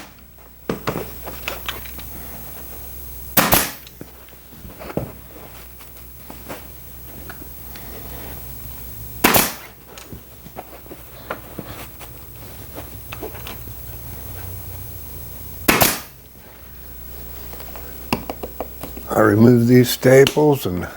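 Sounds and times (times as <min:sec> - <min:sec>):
staple gun firing: 0:03.4 - 0:03.8, 0:09.2 - 0:09.6, 0:15.7 - 0:16.1
cloth rustling: 0:09.8 - 0:14.6.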